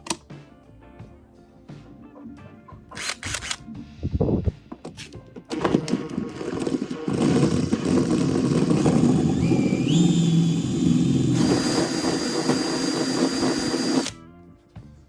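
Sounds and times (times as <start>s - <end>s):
power tool motor whining: 5.5s - 14.2s.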